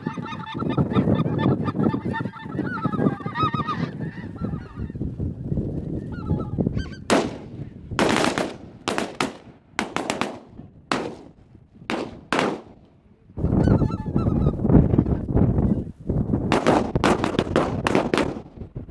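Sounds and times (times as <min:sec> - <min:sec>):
geese honking: 0:00.0 - 0:05.0, 0:06.0 - 0:07.4, 0:13.4 - 0:14.6
shotgun blasts with echo: 0:07.1 - 0:12.9, 0:16.5 - 0:18.5.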